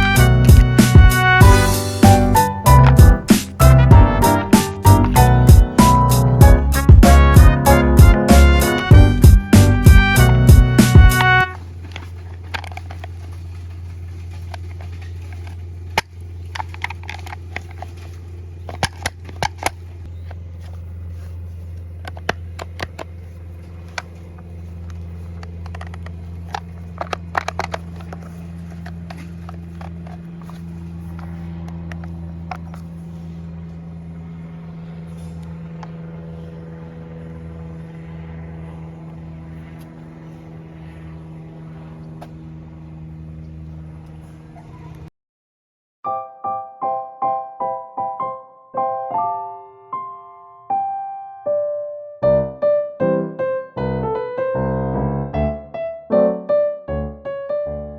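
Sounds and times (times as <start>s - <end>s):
brush cutter engine running: 0.0s - 45.0s.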